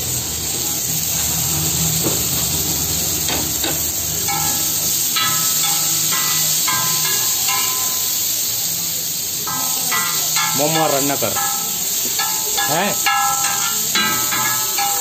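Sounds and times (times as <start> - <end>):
food sizzling on a pan: 0.0 - 15.0
metal spatula scraping a pan: 4.3 - 8.1, 9.5 - 15.0.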